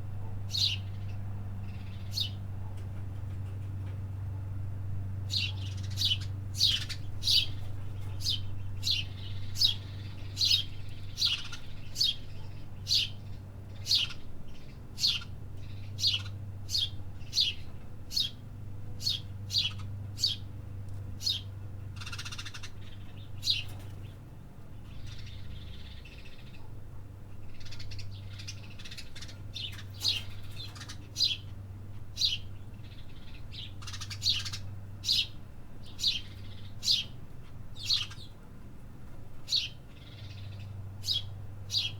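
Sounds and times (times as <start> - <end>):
small birds chirping: 0.2 - 4.0, 5.2 - 41.9.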